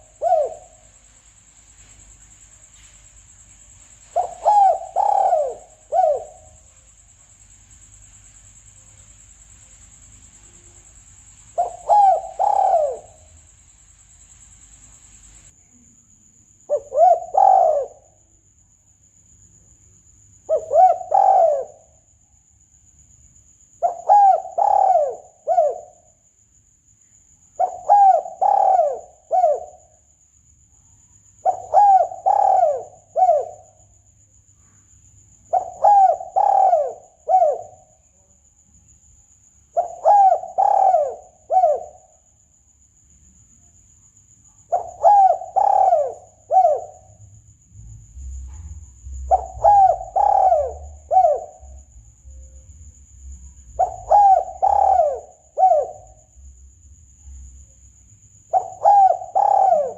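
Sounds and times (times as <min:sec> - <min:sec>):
dove cooing: 0:00.0 - 0:00.8, 0:04.1 - 0:06.6, 0:11.6 - 0:13.3, 0:16.7 - 0:18.1, 0:20.5 - 0:21.9, 0:23.8 - 0:26.0, 0:27.6 - 0:29.8, 0:31.4 - 0:33.8, 0:35.5 - 0:37.8, 0:39.8 - 0:42.1, 0:44.7 - 0:47.2, 0:49.3 - 0:51.8, 0:53.8 - 0:56.1, 0:58.5 - 0:59.9
faint high whine: 0:00.0 - 0:16.4.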